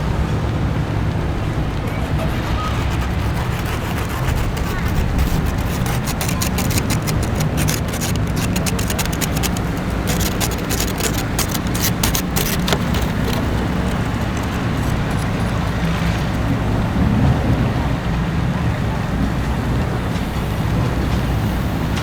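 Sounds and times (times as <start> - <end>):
irregular crackling: 1.8 - 16.6
low rumble of street traffic: 12.2 - 22.0.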